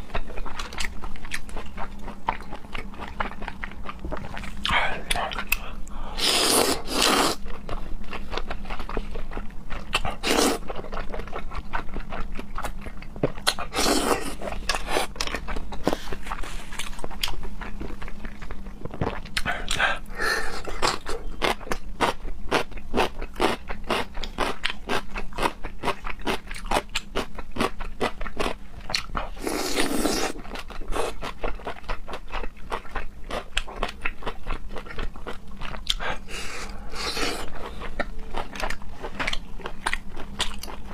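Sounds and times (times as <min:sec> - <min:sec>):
person chewing and crunching: 0:00.0 - 0:40.9
slurping sounds: 0:06.2 - 0:07.4.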